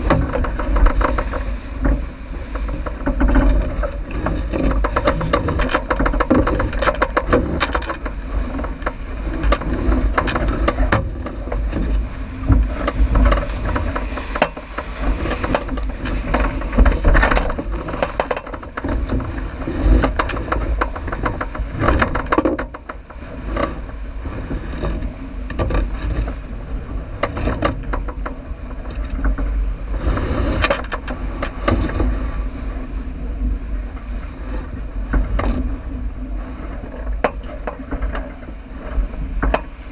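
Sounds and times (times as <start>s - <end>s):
knocks and rattles: 0.0s - 23.7s
water rushing along hull: 0.0s - 39.9s
wind buffeting microphone: 0.0s - 39.9s.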